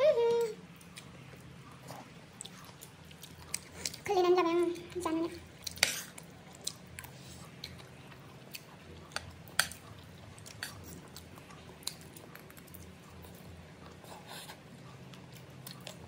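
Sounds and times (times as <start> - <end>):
chewing food: 0.6 - 16.0.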